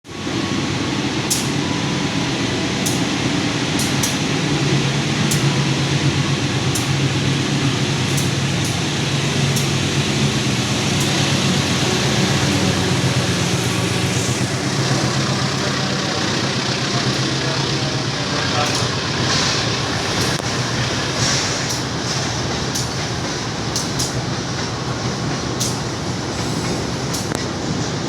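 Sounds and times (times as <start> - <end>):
freight train rumbling on rails: 0.0 - 28.0
sharp rail clicks: 1.2 - 1.7, 2.7 - 4.4, 5.2 - 5.6, 6.6 - 7.1, 7.9 - 28.0.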